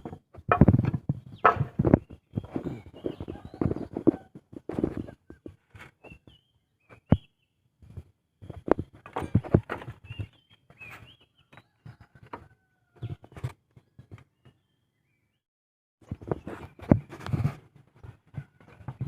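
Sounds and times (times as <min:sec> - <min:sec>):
handling knocks and rustles: 0:00.0 - 0:06.2, 0:07.8 - 0:11.1
birds chirping: 0:01.2 - 0:07.6, 0:08.4 - 0:15.4.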